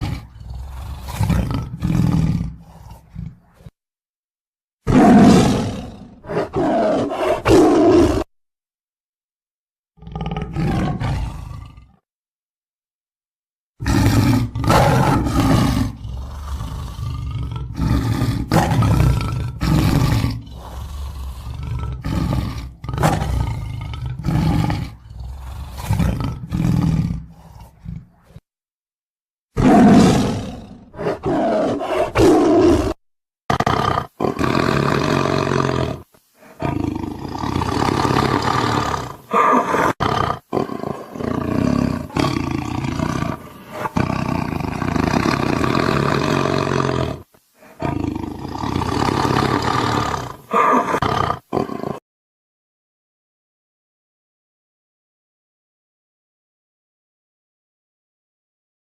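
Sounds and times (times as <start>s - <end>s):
tiger growling and roaring: 0.0s - 3.8s, 4.9s - 8.3s, 10.0s - 12.0s, 13.8s - 28.4s, 29.6s - 52.0s.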